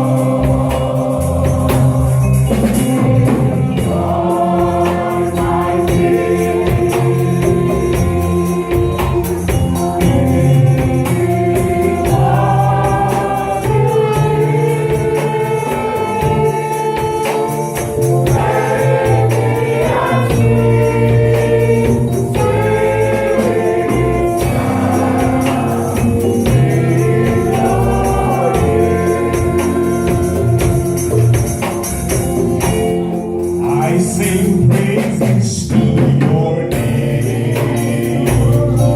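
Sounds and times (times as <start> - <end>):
band accompaniment: 0.0 - 38.9
gospel choir singing: 0.0 - 38.9
tambourine: 0.0 - 38.9.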